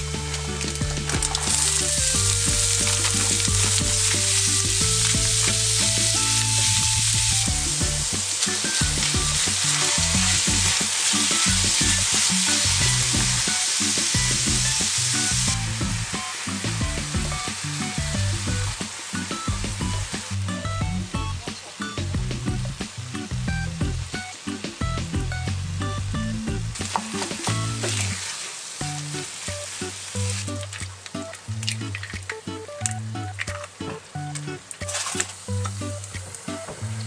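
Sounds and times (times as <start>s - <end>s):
food sizzling in a frying pan: 0.0s - 37.0s
spatula stirring in a pan: 0.5s - 18.1s, 26.8s - 31.2s.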